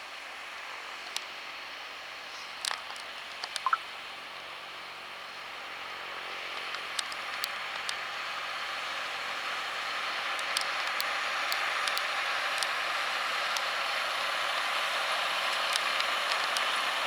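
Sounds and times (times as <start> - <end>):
light ticks: 1.0 - 1.3, 2.3 - 3.8, 6.5 - 8.1, 10.3 - 13.9, 15.5 - 16.8
sharp clicks: 2.6 - 3.8
tractor ploughing: 5.7 - 17.0.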